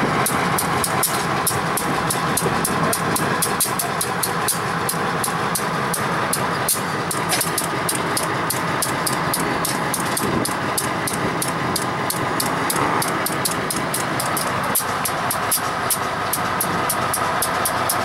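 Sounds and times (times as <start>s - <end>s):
locomotive engine and wheels rumbling: 0.0s - 18.0s
rapid high clicking: 0.2s - 18.0s.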